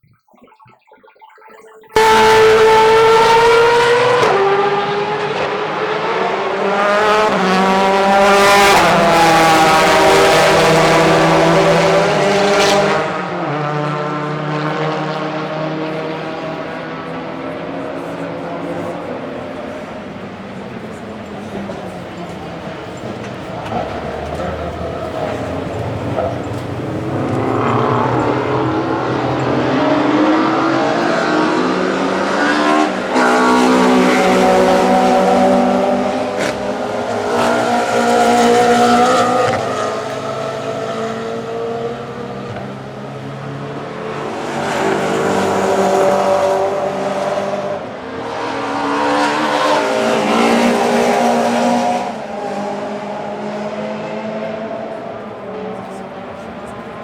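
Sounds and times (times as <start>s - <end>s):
racing car engines revving past: 1.7s - 57.0s.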